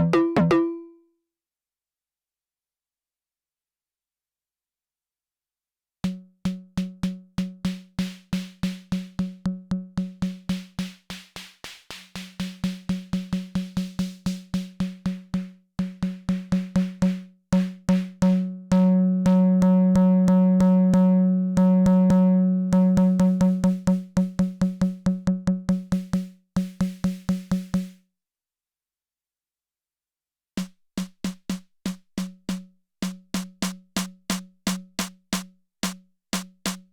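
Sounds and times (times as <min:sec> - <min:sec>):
synthesized snare drum pattern: 0:00.0 - 0:00.9, 0:06.0 - 0:18.5, 0:23.0 - 0:28.0, 0:30.6 - 0:36.9.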